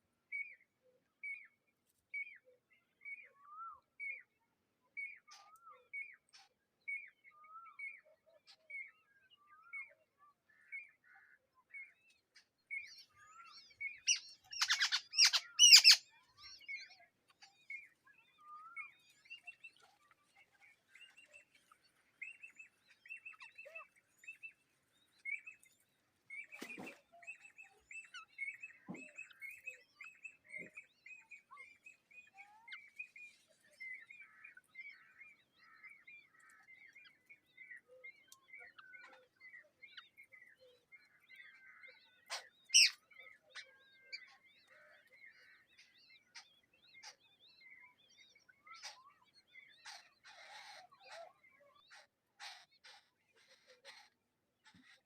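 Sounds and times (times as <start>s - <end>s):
birds chirping: 12.1s - 55.0s.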